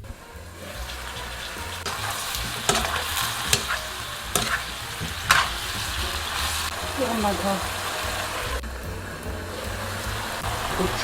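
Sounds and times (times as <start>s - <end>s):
potatoes sizzling in a pan: 0.6s - 8.6s, 9.6s - 11.0s
utensil knocking against a pan: 1.9s - 6.5s.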